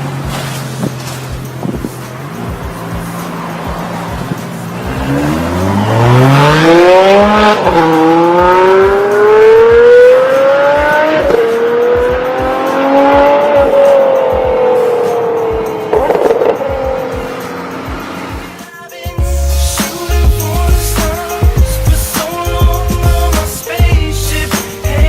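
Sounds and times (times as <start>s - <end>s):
car engine accelerating hard: 0.0s - 18.6s.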